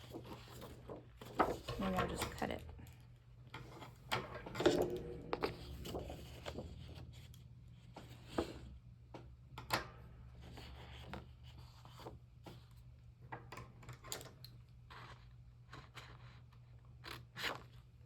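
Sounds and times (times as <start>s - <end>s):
low steady hum: 1.7s - 9.3s.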